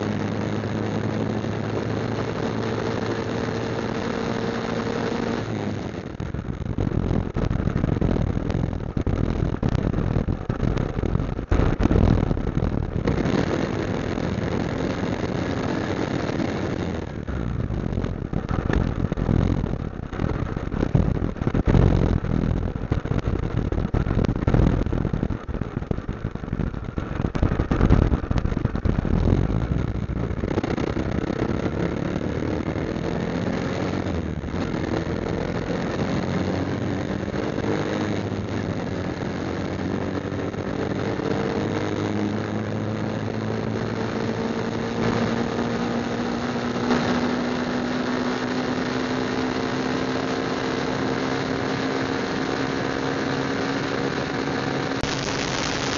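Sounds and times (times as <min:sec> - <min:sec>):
motorcycle engine running: 0:00.0 - 0:55.9
wind buffeting microphone: 0:06.1 - 0:43.8.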